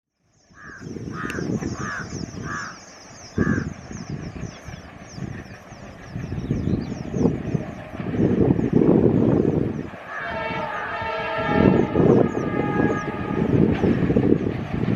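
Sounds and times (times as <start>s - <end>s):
crow cawing: 0.6s - 2.8s, 3.4s - 3.7s
low rumbling noise: 0.7s - 14.9s.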